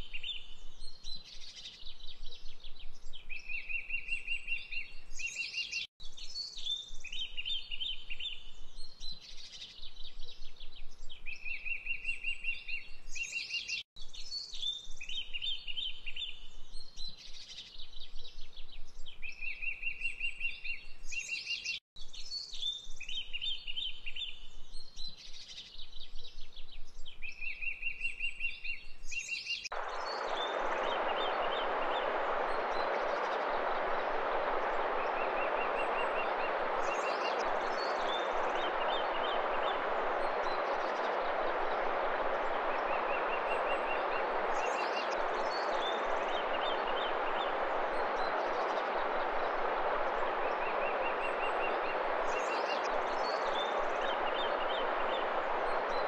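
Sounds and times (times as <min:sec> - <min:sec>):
rushing water: 0:29.7 - 0:56.0.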